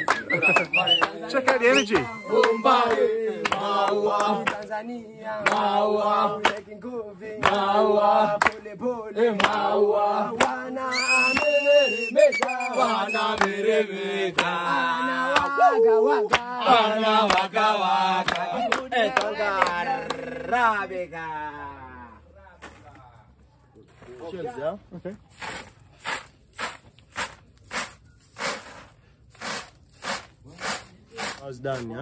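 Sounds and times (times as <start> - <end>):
group of voices chanting: 0.3 - 11.5, 12.4 - 22.0.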